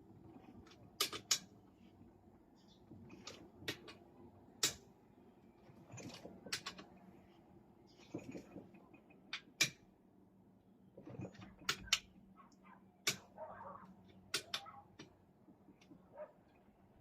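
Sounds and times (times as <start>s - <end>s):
tools and parts clicking and knocking: 0.3s - 1.6s, 2.6s - 4.0s, 4.6s - 4.9s, 5.8s - 6.9s, 8.0s - 9.9s, 11.0s - 13.4s, 14.0s - 16.7s.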